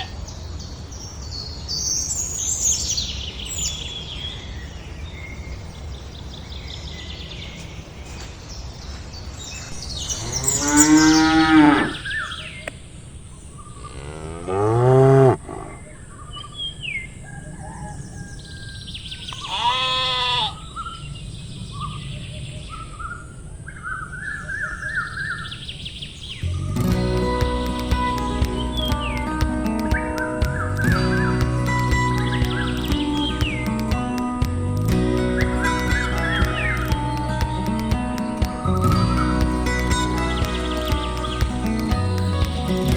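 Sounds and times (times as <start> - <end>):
cattle mooing: 10.3 - 12.0, 13.9 - 15.8.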